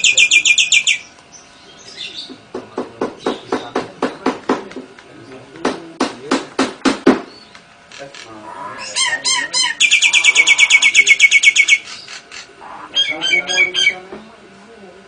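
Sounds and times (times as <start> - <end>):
high bird trill: 0.0 - 2.3, 7.4 - 14.0
harsh rhythmic bird calls: 0.0 - 4.6, 7.0 - 14.1
falling bird chirps: 8.2 - 13.4.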